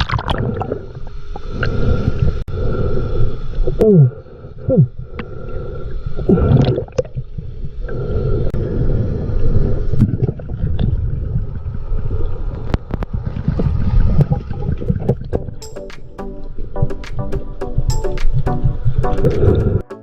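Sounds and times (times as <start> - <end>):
seawater gurgling and sloshing: 0.0 - 15.4.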